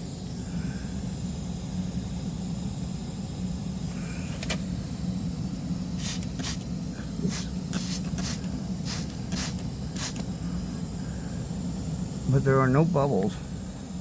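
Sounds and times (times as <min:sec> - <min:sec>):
steady low hum: 0:00.0 - 0:14.0
spray bottle hissing: 0:05.9 - 0:10.4.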